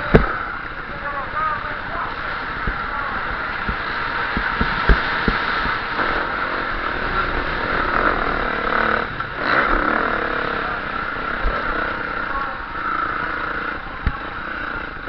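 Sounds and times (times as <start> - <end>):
wind noise: 0.0 - 8.1
motocross engine revving: 3.4 - 15.0
sharp knocks: 3.6 - 6.3.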